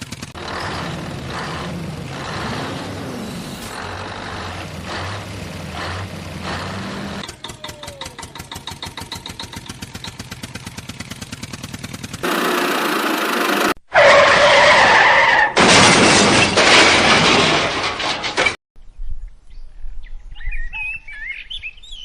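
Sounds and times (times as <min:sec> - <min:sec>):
engine hum: 0:00.0 - 0:13.8
fast engine chugging: 0:00.0 - 0:13.8
loud hissing and screeching: 0:00.4 - 0:07.2.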